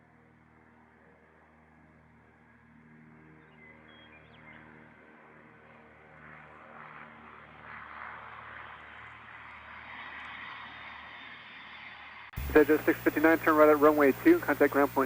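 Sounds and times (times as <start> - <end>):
jet engines rushing: 12.4 - 15.0.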